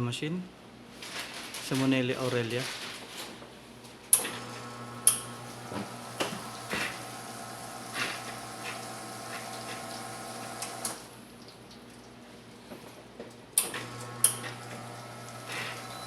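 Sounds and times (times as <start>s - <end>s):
espresso machine humming: 4.3s - 11.1s, 13.8s - 16.0s.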